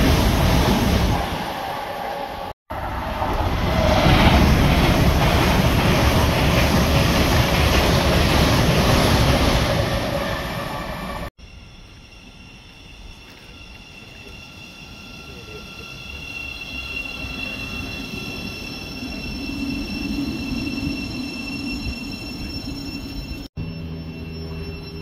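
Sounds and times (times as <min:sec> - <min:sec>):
train rushing past: 0:00.0 - 0:11.3.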